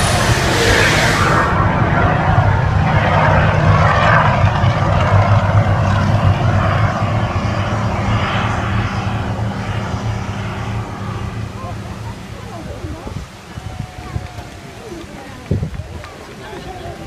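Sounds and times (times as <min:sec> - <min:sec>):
hissing spouting water: 0:00.0 - 0:01.7
deep rumbling: 0:00.0 - 0:13.4.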